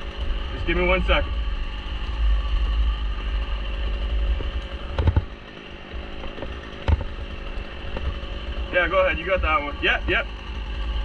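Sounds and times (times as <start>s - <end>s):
chainsaw engine running: 0.0s - 11.0s
sharp knocks: 4.4s - 5.3s, 6.2s - 8.2s.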